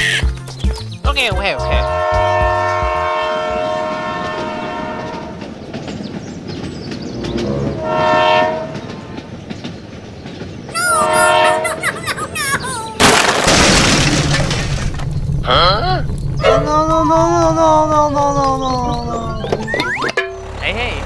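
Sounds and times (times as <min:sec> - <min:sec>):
horn blasts: 0:01.5 - 0:05.4, 0:07.3 - 0:09.0, 0:10.9 - 0:11.6.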